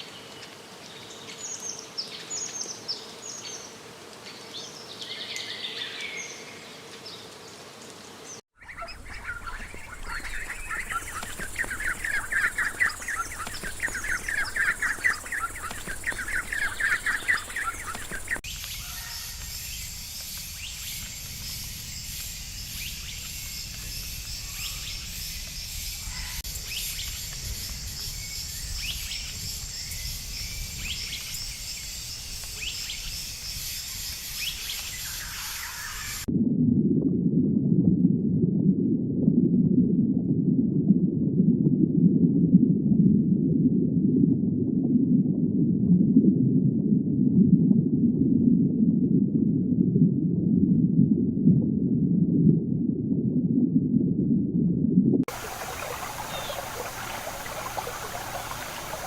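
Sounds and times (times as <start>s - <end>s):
bird chirps: 8.6s - 21.6s, 55.3s - 59.0s
dense chirping trill: 10.2s - 18.4s, 55.3s - 59.0s.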